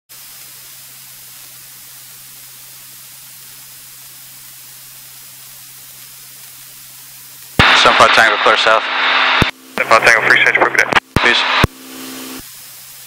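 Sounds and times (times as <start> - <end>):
steady hiss: 0.1 - 13.0
low even hum: 6.9 - 12.4.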